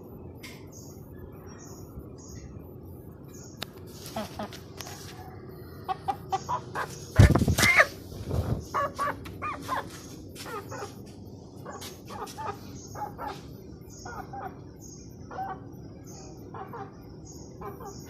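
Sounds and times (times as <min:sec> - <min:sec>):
faint high chirps: 0:00.0 - 0:18.0
chickens clucking: 0:04.0 - 0:18.0.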